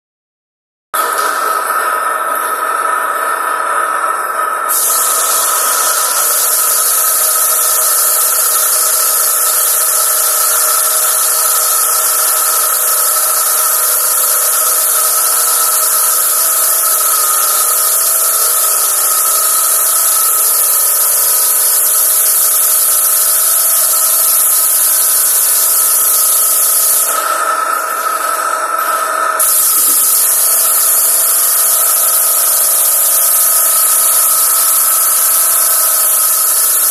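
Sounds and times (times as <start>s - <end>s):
pressure washer spray hissing: 4.7s - 28.2s, 28.8s - 36.9s.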